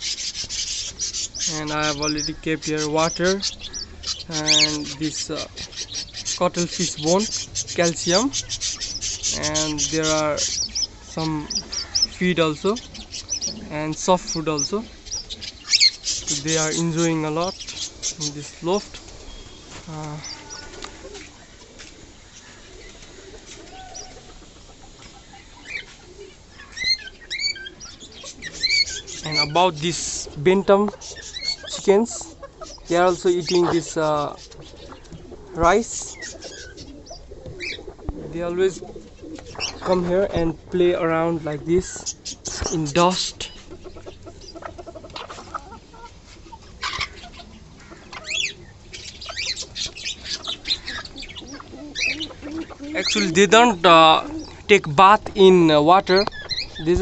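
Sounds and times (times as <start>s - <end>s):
high bird chirps: 0.0s - 21.3s, 26.5s - 30.3s, 30.9s - 37.9s, 46.8s - 57.0s
birds clucking and cooing: 0.0s - 57.0s.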